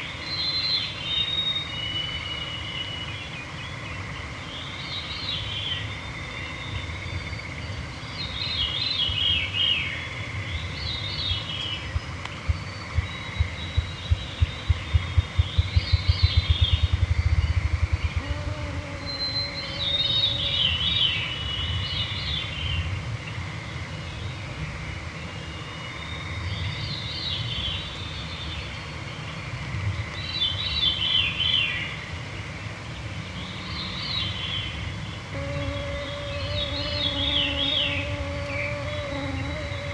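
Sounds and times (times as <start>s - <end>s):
low thumps speeding into flutter: 11.9s - 19.1s
mosquito whine: 18.0s - 21.1s, 35.3s - 39.9s.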